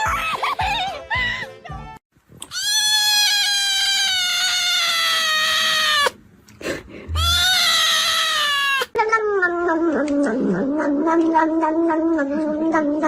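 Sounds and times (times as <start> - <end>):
cat yowling: 2.5 - 6.2, 7.2 - 13.0.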